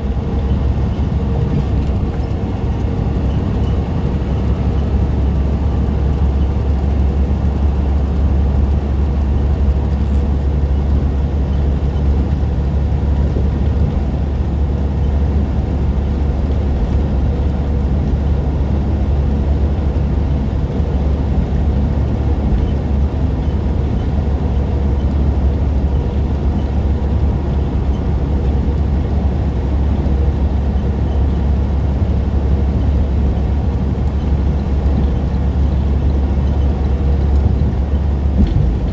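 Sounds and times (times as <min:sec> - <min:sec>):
truck engine and road drone: 0:00.0 - 0:38.9.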